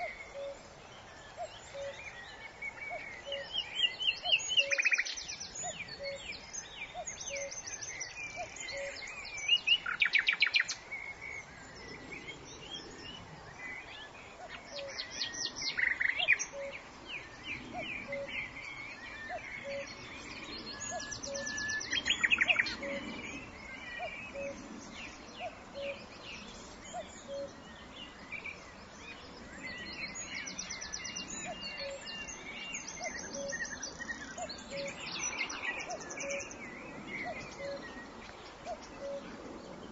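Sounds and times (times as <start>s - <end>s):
birds singing and calling: 0.0s - 39.9s.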